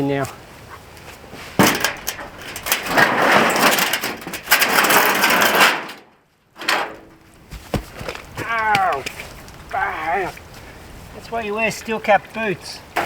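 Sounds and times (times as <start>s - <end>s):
scrap tin and wood rattling: 1.4s - 9.6s.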